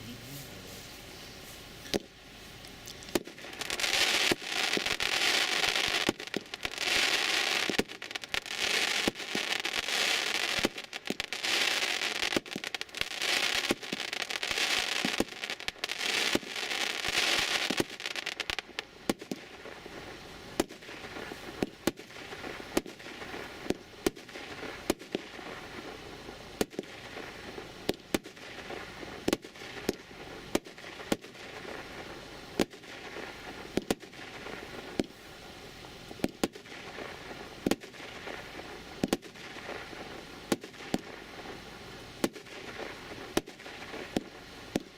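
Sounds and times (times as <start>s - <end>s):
fireworks cake firing sharp shots: 1.9s - 2.2s, 3.0s - 35.2s, 36.1s - 44.9s.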